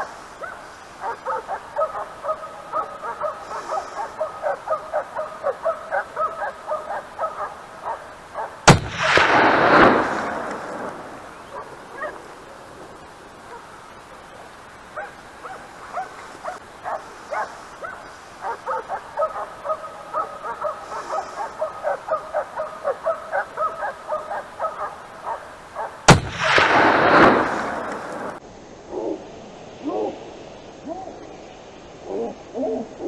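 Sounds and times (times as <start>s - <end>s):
hunting dogs barking and baying: 0.0s - 30.2s
rifle shot: 8.7s - 11.6s, 26.1s - 28.4s.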